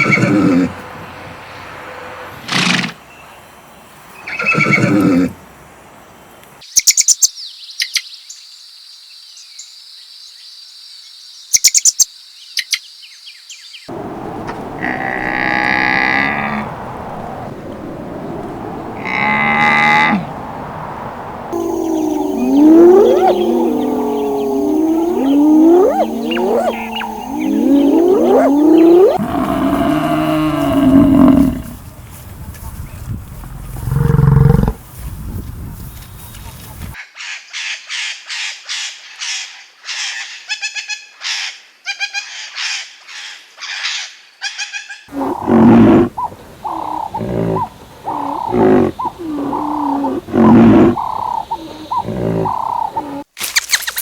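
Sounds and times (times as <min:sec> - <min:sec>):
songbird chirping: 0:06.4 - 0:34.8, 0:45.1 - 0:54.0
animal swooping cries: 0:13.9 - 0:20.4, 0:21.5 - 0:31.7
low held animal call: 0:13.9 - 0:20.4, 0:21.5 - 0:31.8, 0:45.1 - 0:53.3
high insect drone: 0:13.9 - 0:31.8.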